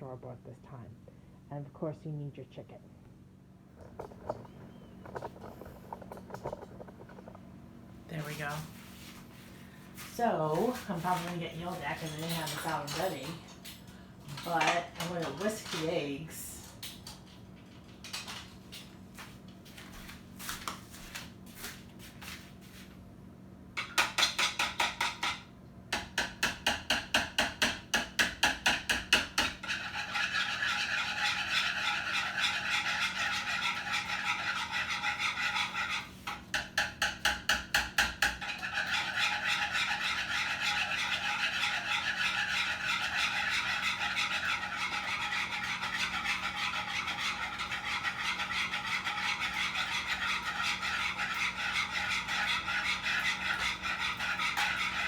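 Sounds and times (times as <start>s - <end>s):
whisk beating eggs in a bowl: 28.2s - 55.0s.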